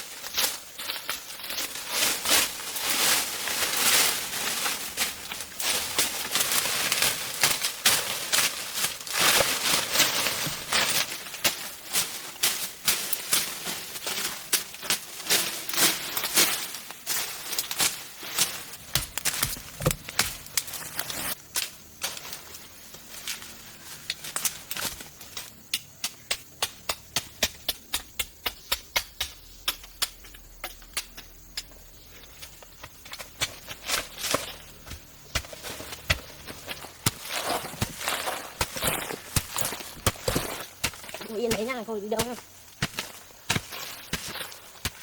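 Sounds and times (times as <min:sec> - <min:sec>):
sharp knocks and taps: 0:25.7 - 0:31.7.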